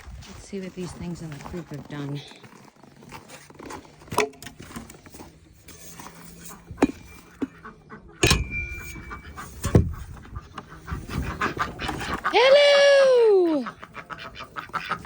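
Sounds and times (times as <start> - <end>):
metallic clank ringing: 8.2 - 10.0
knocks and clanks of coop: 8.2 - 12.2.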